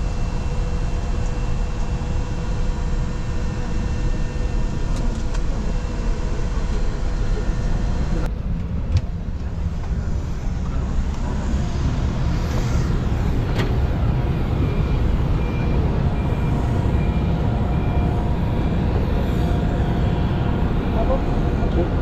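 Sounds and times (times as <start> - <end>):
low machinery rumble: 0.0 - 22.0.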